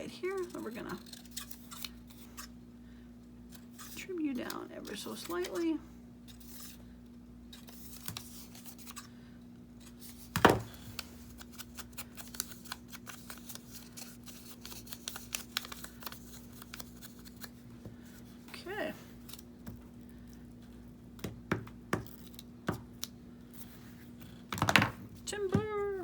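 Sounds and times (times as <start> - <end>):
faint steady hum: 0.0 - 26.0
scissors snipping paper: 0.2 - 2.5, 9.8 - 19.7.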